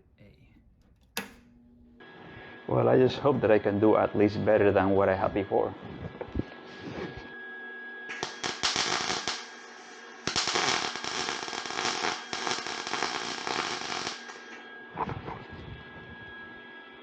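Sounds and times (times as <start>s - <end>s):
welder arc crackling: 0.0s - 2.0s, 8.1s - 14.7s.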